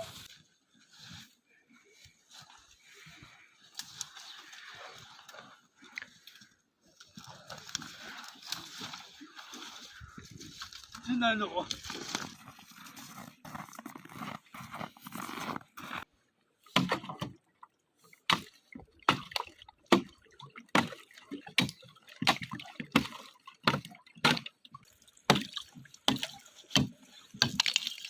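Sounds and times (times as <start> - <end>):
footsteps through snow and water: 0.0 - 28.0.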